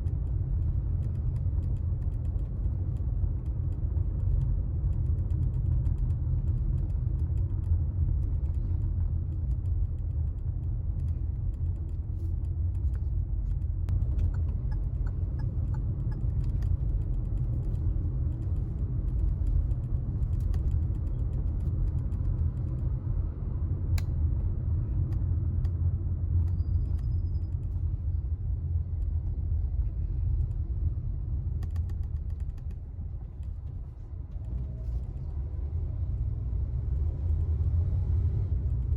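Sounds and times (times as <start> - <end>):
car interior rumble: 0.0 - 38.9.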